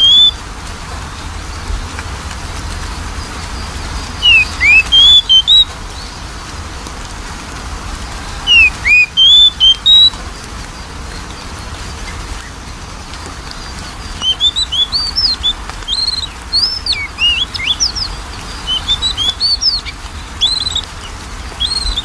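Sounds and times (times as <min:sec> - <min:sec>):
bird singing whistled notes: 0:00.0 - 0:00.4, 0:03.4 - 0:06.2, 0:08.4 - 0:10.2, 0:13.5 - 0:22.0.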